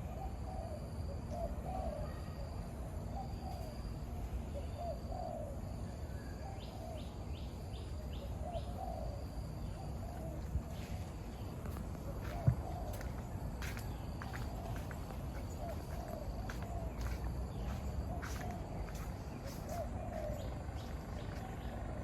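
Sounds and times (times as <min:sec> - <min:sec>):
birds calling: 0:06.4 - 0:22.0.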